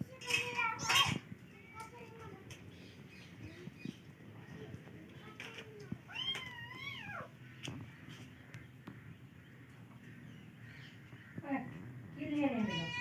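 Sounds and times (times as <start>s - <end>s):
cat meowing: 6.1s - 7.3s, 12.6s - 13.0s.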